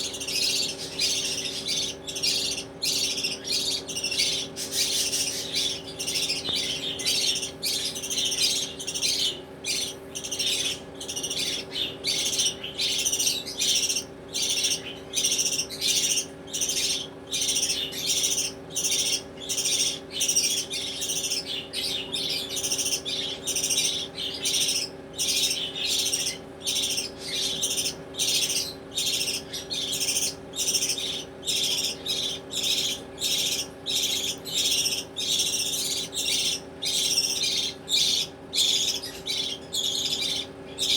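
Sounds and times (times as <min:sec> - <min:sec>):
budgerigars squawking: 0:00.0 - 0:40.9.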